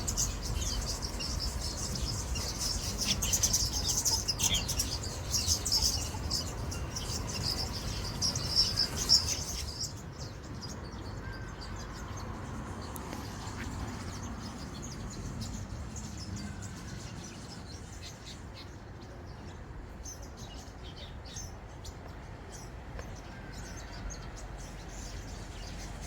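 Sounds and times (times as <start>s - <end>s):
small birds twittering chorus: 0.0s - 26.0s.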